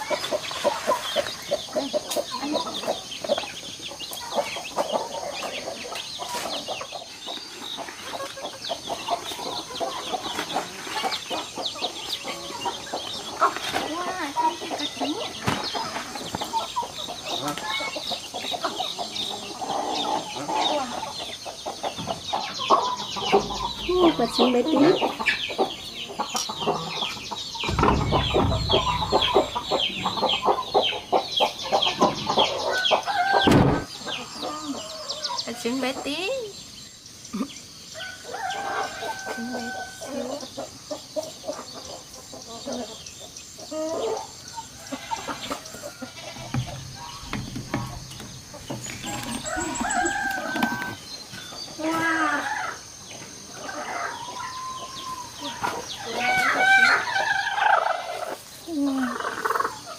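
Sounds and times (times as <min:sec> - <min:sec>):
chickens clucking: 0:00.0 - 0:59.9
low handling rumble: 0:27.4 - 0:30.8
rooster crowing: 0:32.5 - 0:33.6, 0:38.0 - 0:40.3, 0:49.0 - 0:51.0.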